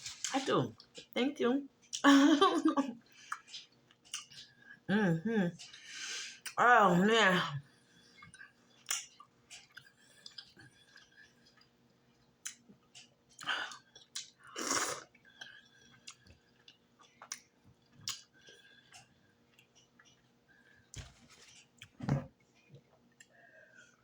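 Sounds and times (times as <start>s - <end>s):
person chewing food: 3.0s - 4.8s, 8.0s - 24.0s
wet mouth clicks: 18.1s - 18.3s.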